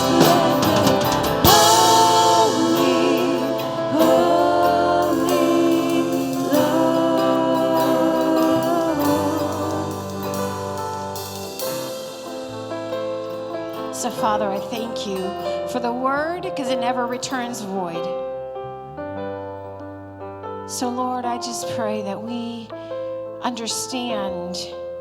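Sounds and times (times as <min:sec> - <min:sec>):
person singing long notes: 0:00.0 - 0:12.1
band playing worship music: 0:00.0 - 0:15.8.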